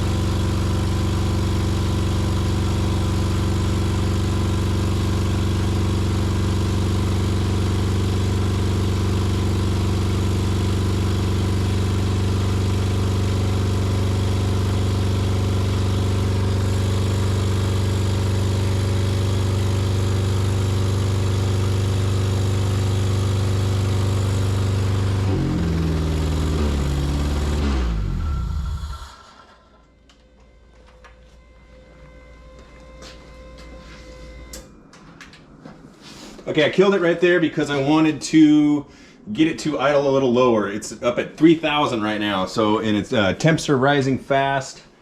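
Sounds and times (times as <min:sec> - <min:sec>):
car engine running at high idle: 0:00.0 - 0:29.8
engine winding down: 0:00.0 - 0:35.8.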